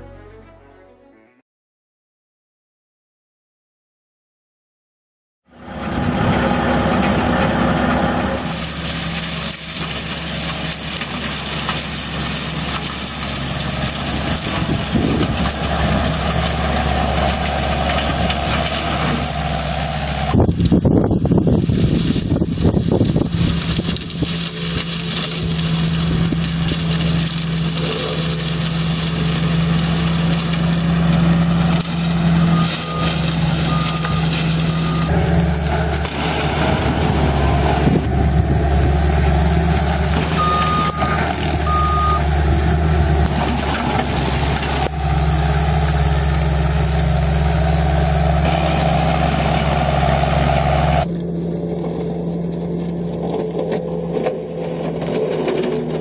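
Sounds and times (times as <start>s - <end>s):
heavy machine engine running: 5.5s - 56.0s
short warning beeps: 40.3s - 42.3s.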